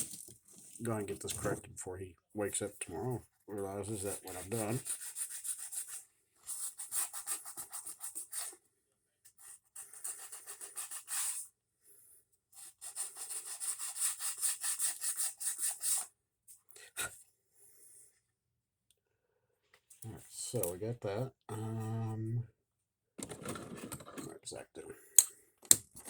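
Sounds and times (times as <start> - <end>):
hand sanding wood: 3.9 - 6.0.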